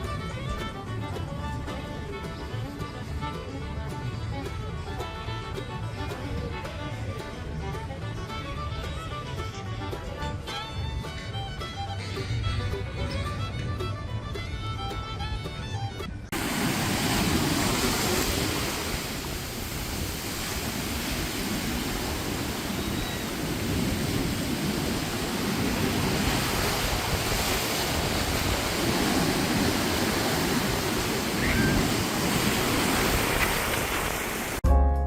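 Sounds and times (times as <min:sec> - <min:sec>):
low rumbling gusts: 0:16.3 - 0:34.6
steady rushing noise: 0:16.3 - 0:34.6.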